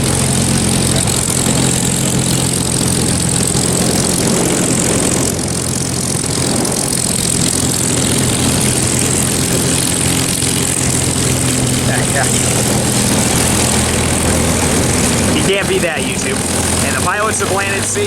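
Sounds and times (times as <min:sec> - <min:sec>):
aircraft piston engine idling: 0:00.0 - 0:18.0.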